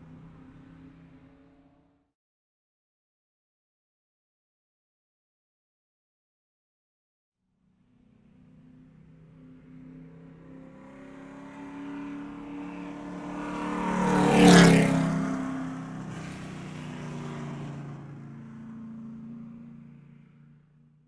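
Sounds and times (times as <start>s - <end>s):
car driving past: 7.9s - 20.7s.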